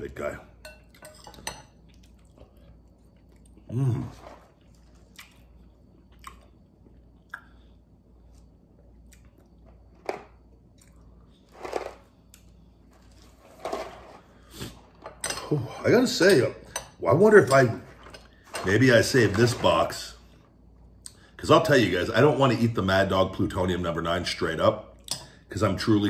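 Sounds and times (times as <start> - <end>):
man chewing food: 0.9 - 13.4.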